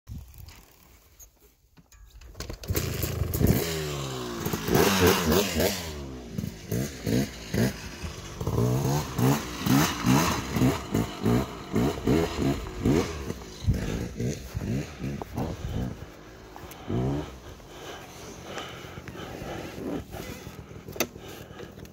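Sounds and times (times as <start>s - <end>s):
dirt bike engine revving: 2.6s - 21.6s.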